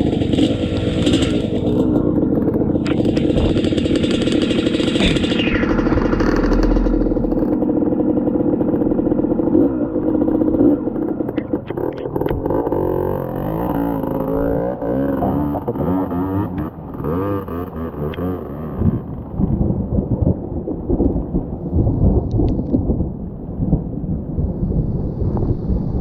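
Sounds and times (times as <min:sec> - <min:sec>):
dirt bike engine under load: 0:00.0 - 0:19.0.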